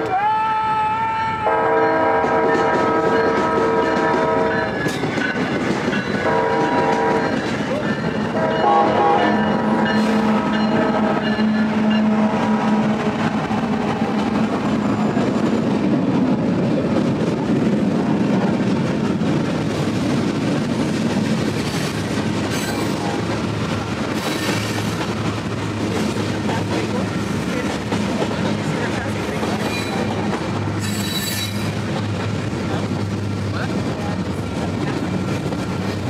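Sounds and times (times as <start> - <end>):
diesel locomotive engine rumble: 0.0 - 36.0
train horn: 1.0 - 4.8, 6.2 - 7.5, 8.2 - 13.5, 22.8 - 23.3
wheels clacking over rail joints: 2.2 - 36.0.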